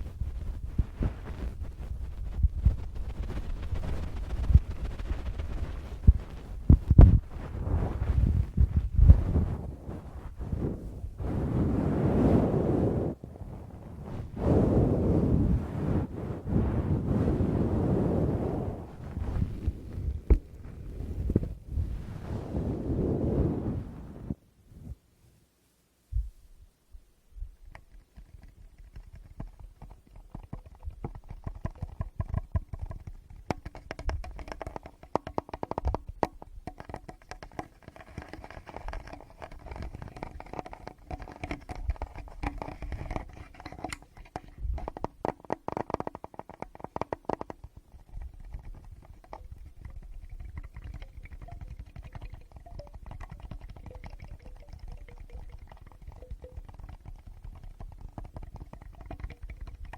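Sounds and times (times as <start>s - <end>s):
fingers tapping on microphone: 0.0s - 7.6s, 27.7s - 59.9s.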